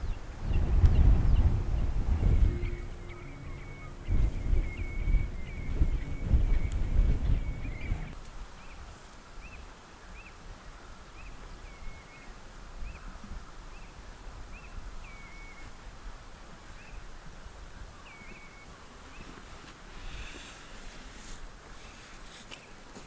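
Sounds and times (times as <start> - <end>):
low background rumble: 0.0 - 8.2
bird chirping: 0.0 - 8.8.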